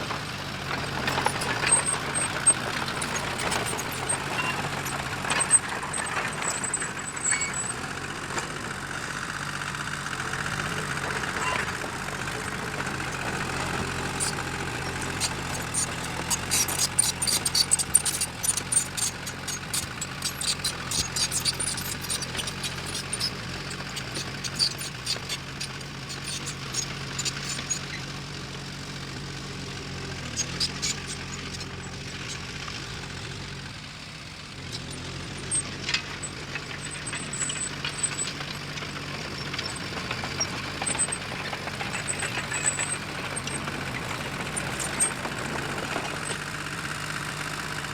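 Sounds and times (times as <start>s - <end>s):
diesel engine running: 0.0s - 47.9s
high squeaks: 0.8s - 7.8s, 13.0s - 28.2s, 30.1s - 32.5s.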